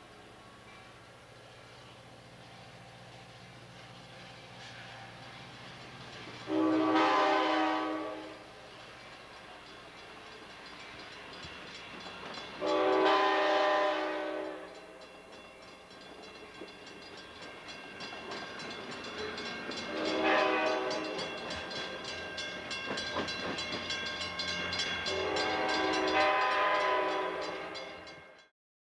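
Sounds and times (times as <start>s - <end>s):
locomotive engine running: 0.0s - 28.2s
train wheels clattering: 0.8s - 28.5s
locomotive air horn blasts: 6.5s - 8.5s, 12.6s - 14.8s, 19.9s - 21.3s, 25.1s - 27.9s.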